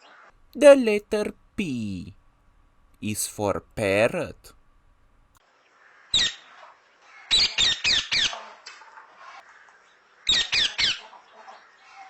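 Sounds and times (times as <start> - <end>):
parrot squawks: 6.2 - 6.4, 7.3 - 8.4, 10.3 - 11.0.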